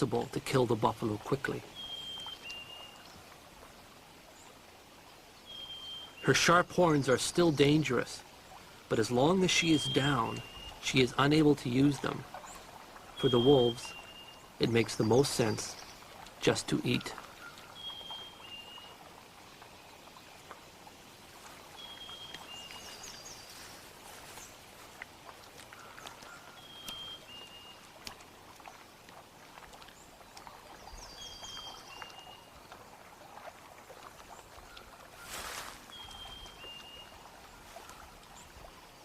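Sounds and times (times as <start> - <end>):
bird two-note whistle: 26.6 - 27.3.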